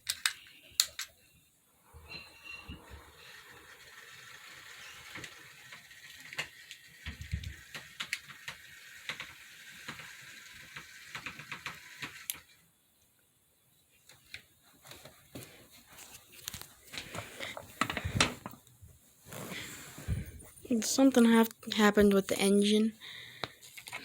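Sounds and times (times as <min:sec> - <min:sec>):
model train motor whirring: 0:02.0 - 0:12.6
sharp clicks of train wheels: 0:02.8 - 0:12.5.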